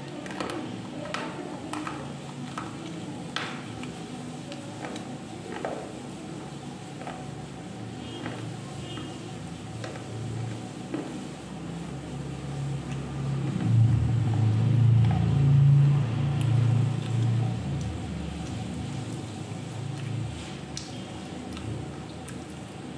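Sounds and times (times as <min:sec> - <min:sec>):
mouth chewing noises: 0:19.7 - 0:22.7.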